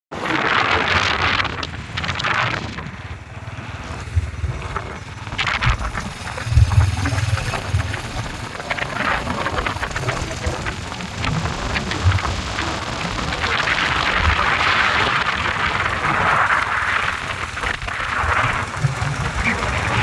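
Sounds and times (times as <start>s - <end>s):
low rumble: 0.8s - 14.6s.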